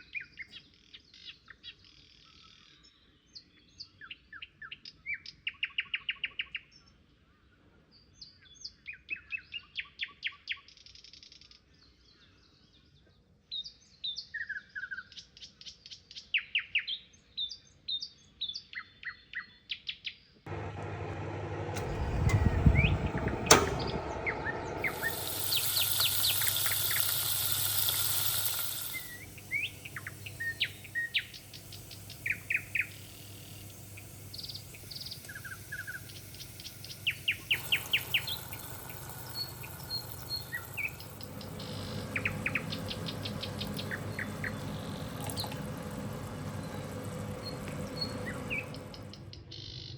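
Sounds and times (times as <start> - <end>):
high hiss: 20.5 - 49.2
small birds chirping: 24.2 - 49.9.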